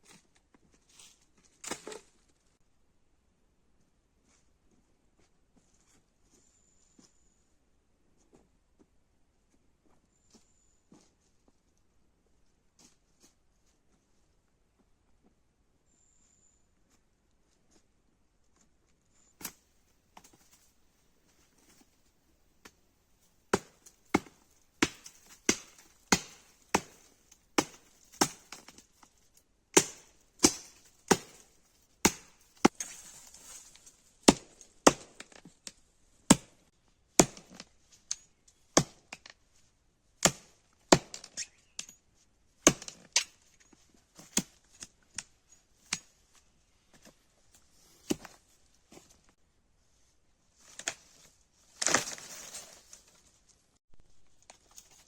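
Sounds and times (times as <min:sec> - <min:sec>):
axe chopping wood: 0:23.5 - 0:28.8, 0:29.8 - 0:33.0, 0:34.2 - 0:35.5, 0:36.3 - 0:36.6, 0:37.2 - 0:37.7, 0:38.8 - 0:39.3, 0:40.2 - 0:41.4, 0:42.6 - 0:43.3.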